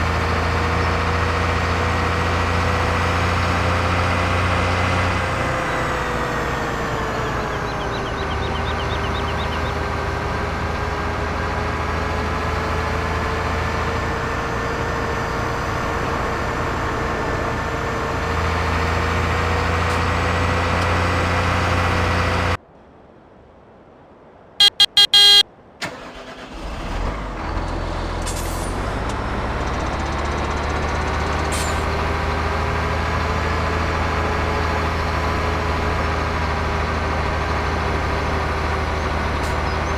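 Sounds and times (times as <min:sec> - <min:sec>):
vehicle engine running: 0:00.0 - 0:22.6, 0:24.6 - 0:25.4
short sharp beeps: 0:24.6 - 0:25.4.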